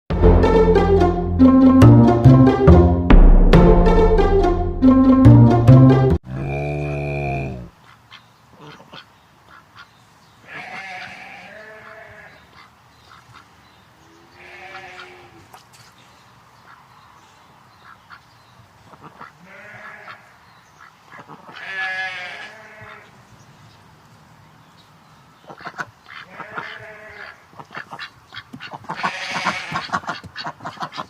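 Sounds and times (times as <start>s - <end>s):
farm animal calling: 6.3s - 15.6s, 18.9s - 23.2s, 25.3s - 31.0s.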